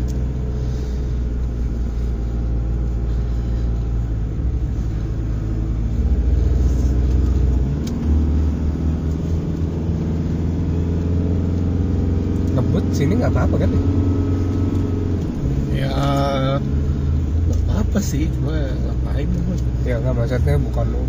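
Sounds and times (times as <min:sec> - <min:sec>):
car engine droning inside cabin: 0:00.0 - 0:21.0.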